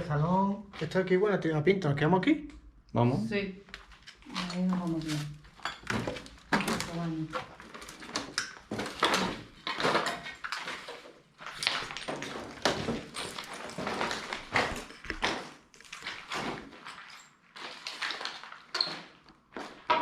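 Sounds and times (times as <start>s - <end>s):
footsteps on hard floor: 11.5s - 16.8s.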